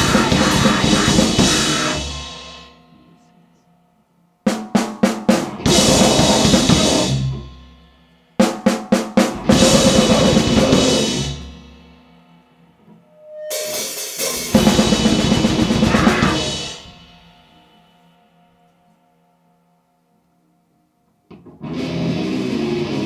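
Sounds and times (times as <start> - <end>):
drum kit with distorted noise: 0.0 - 3.3, 4.5 - 18.2, 21.4 - 23.0.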